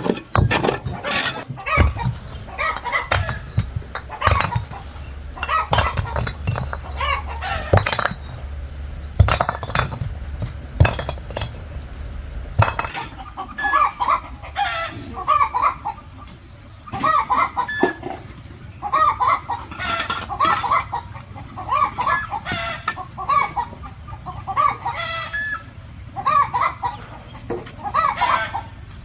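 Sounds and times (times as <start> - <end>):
chickens clucking: 0.0 - 12.6
sharp knocks: 1.7 - 13.2.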